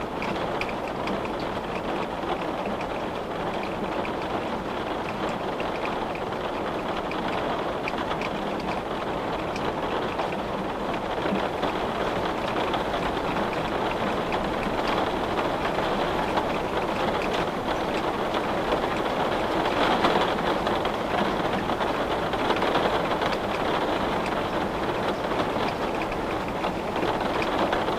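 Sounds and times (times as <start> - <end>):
rain on a window: 0.0 - 27.9.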